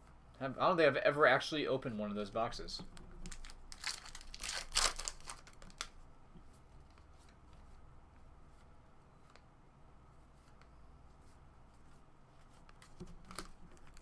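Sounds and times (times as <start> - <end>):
packaging being torn open: 3.3 - 5.9.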